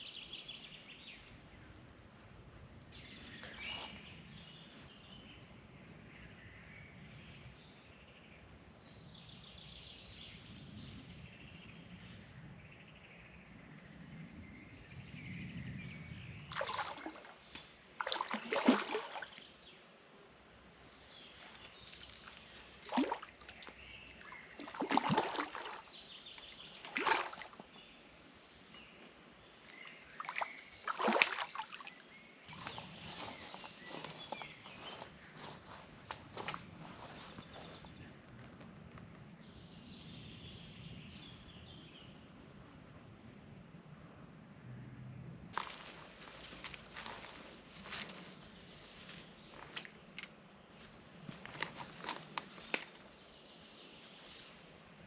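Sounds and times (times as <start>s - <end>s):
faint birdsong: 0.0s - 55.0s
water splashing: 16.5s - 19.5s, 22.0s - 27.9s, 30.0s - 32.0s.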